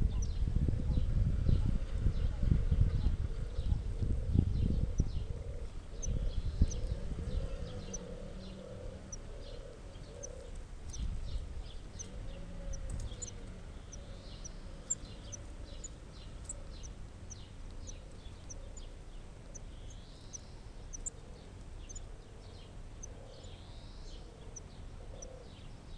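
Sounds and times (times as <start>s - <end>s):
low cooing: 3.3s - 10.6s
hissy bird calls: 3.4s - 25.8s.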